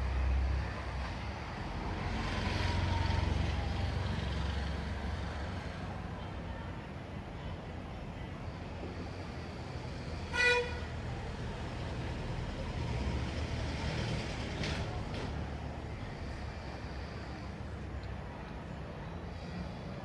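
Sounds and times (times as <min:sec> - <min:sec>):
road traffic rumble: 0:00.0 - 0:20.0
vehicle horn toot: 0:10.3 - 0:10.9.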